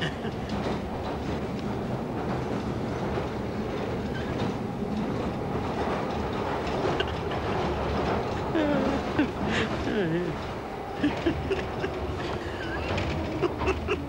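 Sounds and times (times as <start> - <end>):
train wheels rolling on rails: 0.0 - 14.0
person's voice: 8.4 - 10.5.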